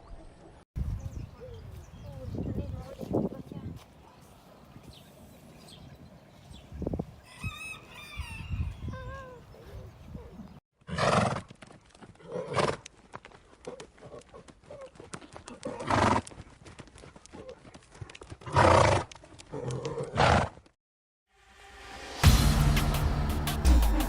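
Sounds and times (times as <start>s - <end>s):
hooves clopping: 11.3s - 20.7s.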